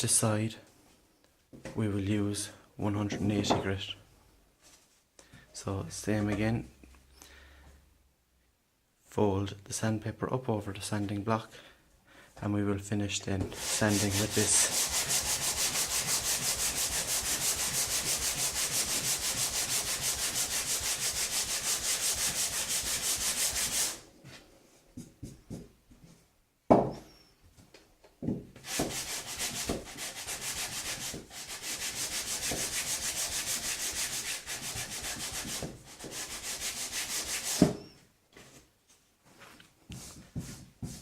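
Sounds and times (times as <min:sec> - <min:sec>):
sandpaper rubbing on wood: 0:13.5 - 0:24.0, 0:28.6 - 0:37.8.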